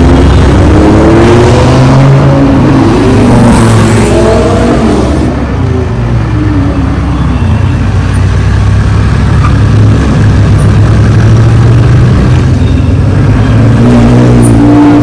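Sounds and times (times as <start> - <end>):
loud car engine revs falling: 0.0 - 5.4, 13.3 - 15.0.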